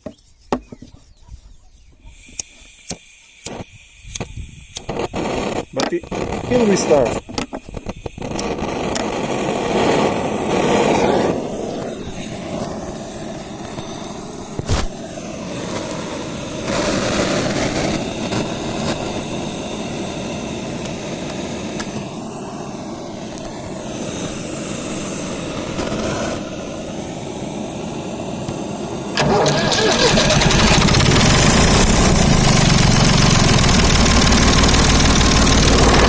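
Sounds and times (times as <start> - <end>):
tractor engine running: 29.1 - 36.0.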